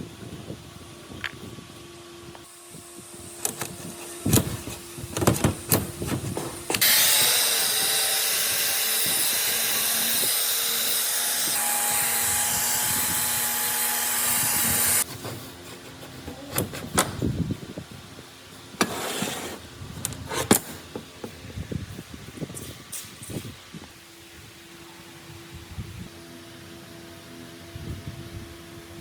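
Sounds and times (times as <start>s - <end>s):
loud steady hiss: 0.0s - 15.7s.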